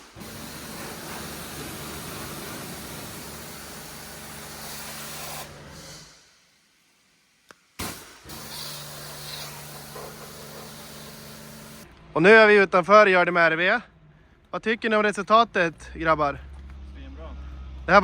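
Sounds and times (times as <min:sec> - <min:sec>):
hose spraying water on car: 0:00.0 - 0:11.8.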